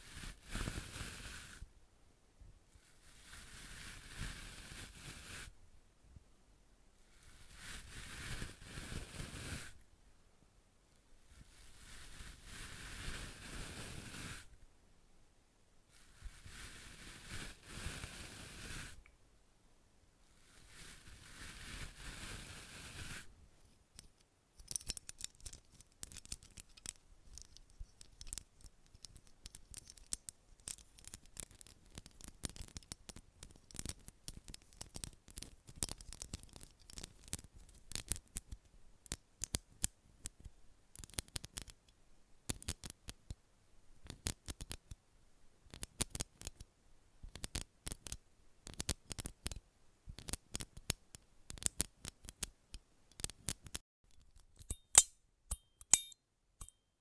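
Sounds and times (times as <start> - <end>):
soft rustle: 0.0 - 1.8, 2.4 - 6.2, 6.9 - 10.2, 10.8 - 14.8, 15.8 - 19.2, 20.2 - 43.4.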